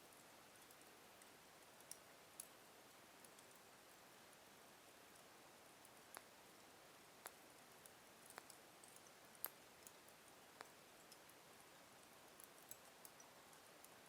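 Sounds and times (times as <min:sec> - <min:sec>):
log fire crackling: 0:01.8 - 0:02.6, 0:07.2 - 0:11.4, 0:12.3 - 0:13.9.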